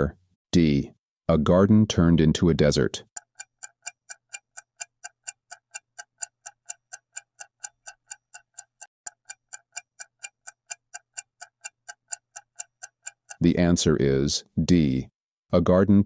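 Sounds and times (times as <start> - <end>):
clock ticking fast: 3.0 - 13.9.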